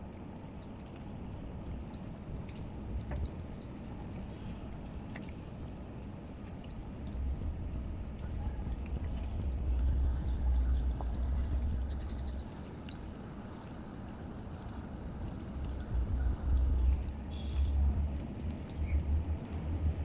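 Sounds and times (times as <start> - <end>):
aquarium water trickling: 0.0 - 20.0
low rumble: 7.0 - 12.6, 15.1 - 20.0.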